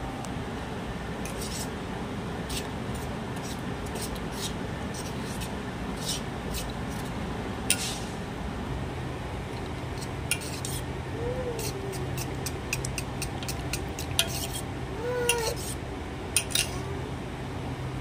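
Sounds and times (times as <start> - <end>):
steady low hum: 0.0 - 18.0
metal utensils clinking on a pot: 16.4 - 16.8.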